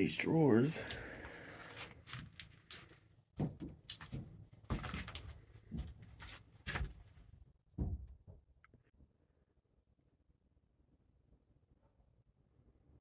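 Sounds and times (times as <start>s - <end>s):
irregular knocks and thuds: 3.4s - 8.5s.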